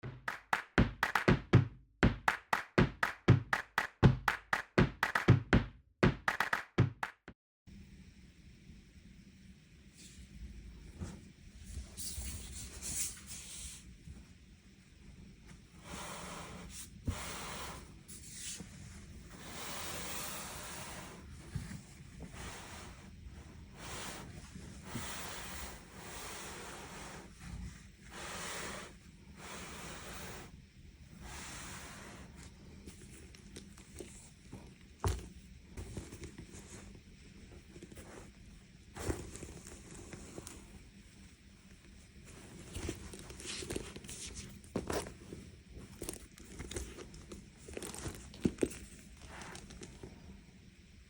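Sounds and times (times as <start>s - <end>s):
sharp knocks: 0.0s - 7.1s.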